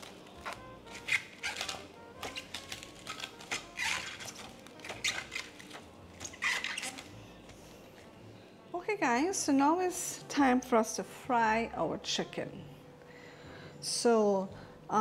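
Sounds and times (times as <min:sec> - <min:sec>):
plastic cling wrap crinkling: 0:00.0 - 0:07.6.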